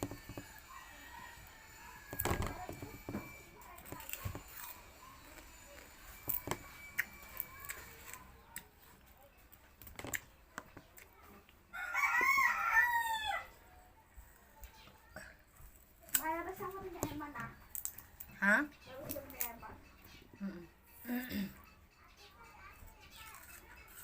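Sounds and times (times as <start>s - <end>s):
rooster crowing: 0.3s - 2.6s, 11.7s - 13.6s.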